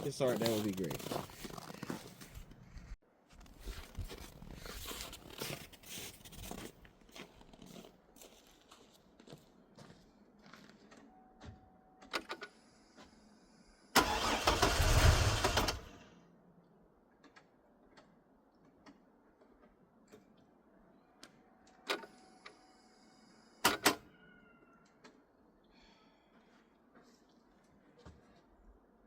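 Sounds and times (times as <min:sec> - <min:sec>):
engine cranking on starter: 0:14.0 - 0:16.0.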